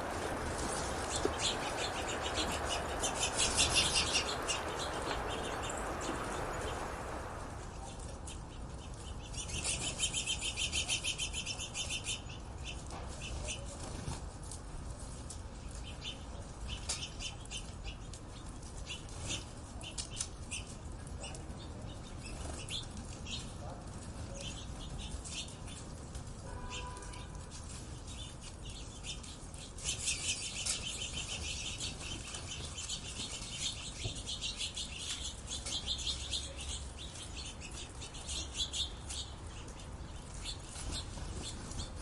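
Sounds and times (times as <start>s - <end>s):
low background rush: 0.0s - 9.6s
birds chirping: 0.0s - 12.8s, 28.0s - 42.0s
fast bird trills: 0.1s - 7.4s.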